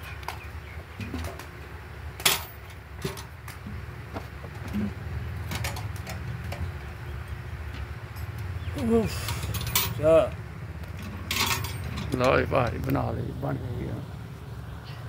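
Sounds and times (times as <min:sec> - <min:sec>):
birds calling: 0:00.0 - 0:02.9, 0:03.6 - 0:15.0.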